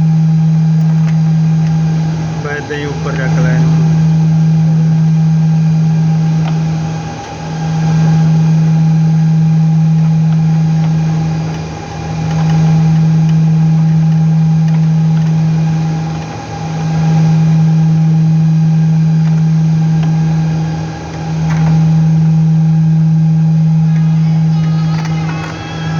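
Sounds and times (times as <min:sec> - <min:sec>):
low electrical hum: 0:00.0 - 0:25.9.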